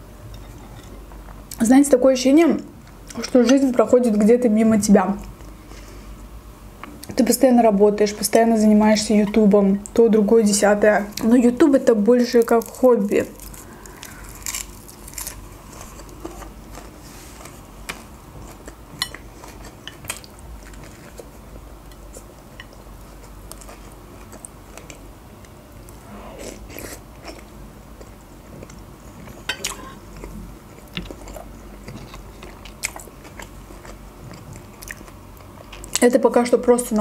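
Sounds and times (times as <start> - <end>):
person chewing food: 13.4 - 36.0.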